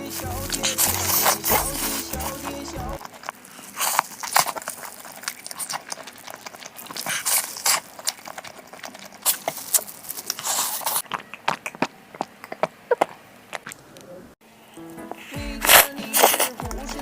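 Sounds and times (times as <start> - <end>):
chewing and smacking: 0.0 - 14.1, 15.6 - 17.0.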